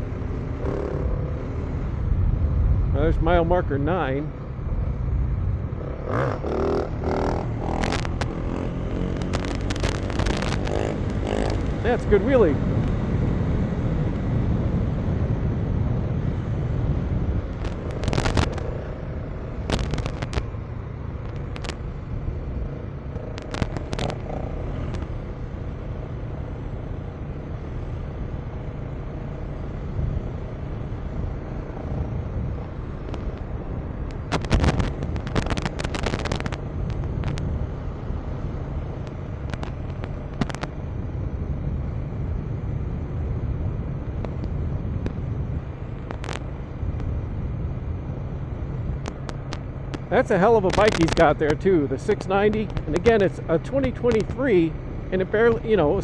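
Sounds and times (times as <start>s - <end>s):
motorcycle engine running: 0.0s - 1.7s, 5.2s - 13.4s, 17.0s - 28.5s, 30.6s - 37.7s
wind rush: 0.0s - 25.3s, 29.9s - 56.0s.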